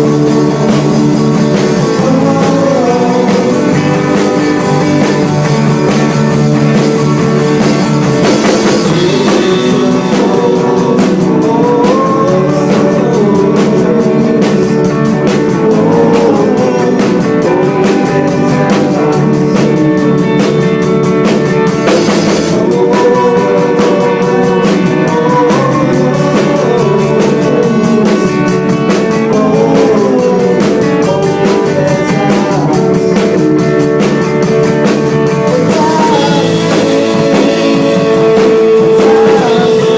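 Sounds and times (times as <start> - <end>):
drums: 0.0 - 39.9
electric guitar: 0.0 - 39.9.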